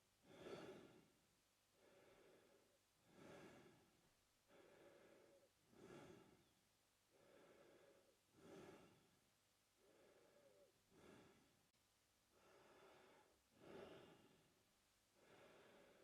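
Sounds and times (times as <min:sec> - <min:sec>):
man breathing through mouth: 0:00.3 - 0:01.0, 0:01.8 - 0:03.8, 0:04.5 - 0:06.5, 0:07.1 - 0:09.1, 0:09.8 - 0:11.5, 0:12.4 - 0:14.4.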